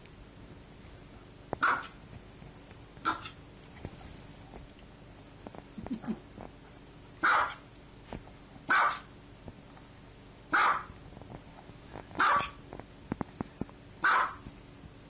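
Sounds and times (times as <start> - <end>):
dog barking: 1.6 - 2.0, 3.0 - 3.4, 7.2 - 7.6, 8.7 - 9.1, 10.5 - 11.0, 12.2 - 12.6, 14.0 - 14.4.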